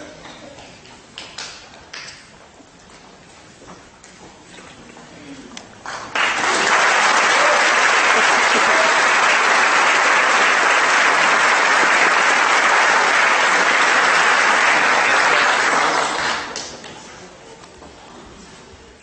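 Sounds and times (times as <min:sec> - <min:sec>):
audience applauding: 0:05.8 - 0:16.8.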